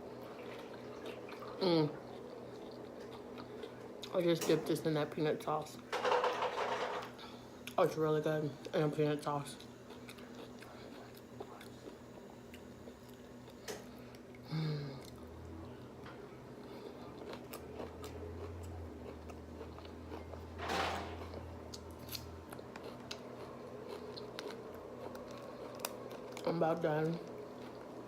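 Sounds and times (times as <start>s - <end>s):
low steady hum: 0.0s - 28.0s
person chewing: 0.4s - 4.2s, 9.6s - 15.3s, 16.6s - 20.6s, 21.2s - 28.0s.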